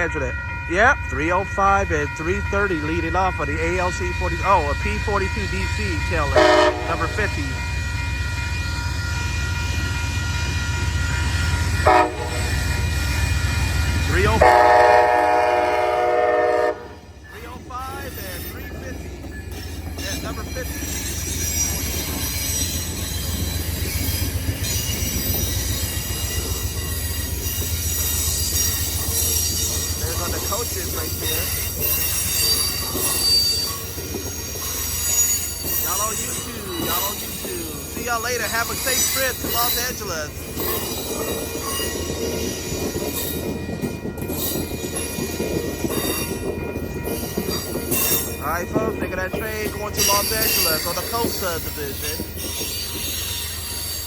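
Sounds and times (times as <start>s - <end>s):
train rumble: 0.0s - 54.0s
wheels squealing on rails: 17.2s - 54.0s.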